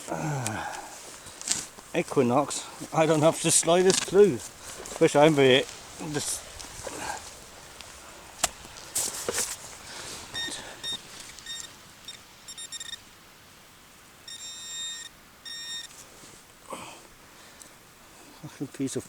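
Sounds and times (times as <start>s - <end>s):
scuffing: 0.0s - 11.5s
metal detector beeping: 10.3s - 13.1s, 14.2s - 16.0s.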